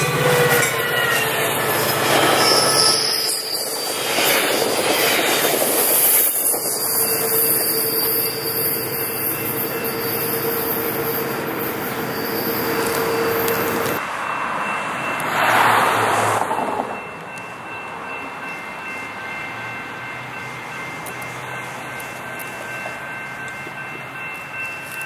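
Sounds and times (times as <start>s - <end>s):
train wheels squealing on rails: 0.0s - 25.0s.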